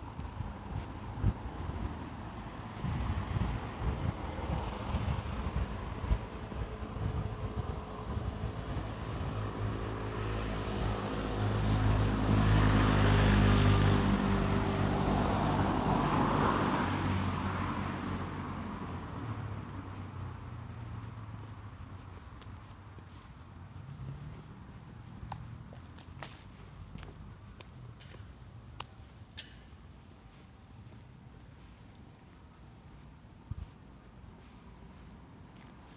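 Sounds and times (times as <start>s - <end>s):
engine passing by: 0.0s - 22.2s, 23.5s - 27.9s
insects chirring: 0.0s - 35.9s.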